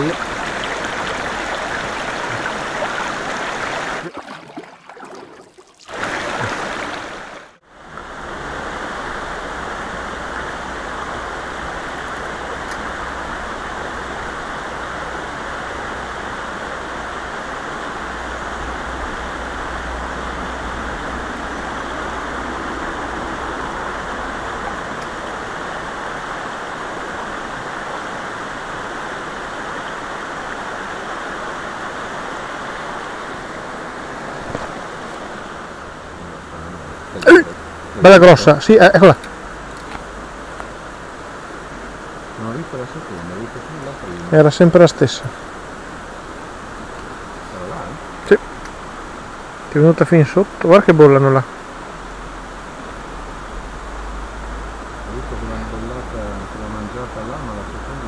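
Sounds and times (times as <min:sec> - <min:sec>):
river rushing over stones: 0:00.0 - 0:58.0.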